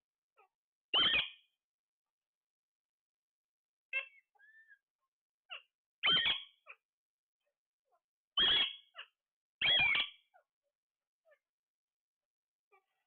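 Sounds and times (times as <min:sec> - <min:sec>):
parrot chirping softly: 0:00.3 - 0:01.7, 0:03.9 - 0:13.0
parrot squawks: 0:00.4 - 0:01.5, 0:03.9 - 0:04.8, 0:05.5 - 0:06.9, 0:07.9 - 0:10.5.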